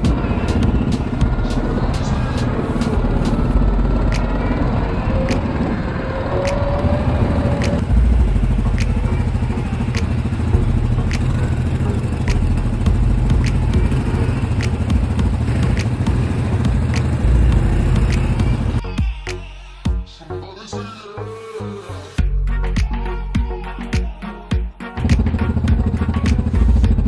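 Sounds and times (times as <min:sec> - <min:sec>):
quad bike engine rumbling: 0:00.0 - 0:18.9, 0:25.0 - 0:27.0
sharp clicks: 0:07.6 - 0:07.9, 0:14.5 - 0:15.0, 0:16.8 - 0:17.2.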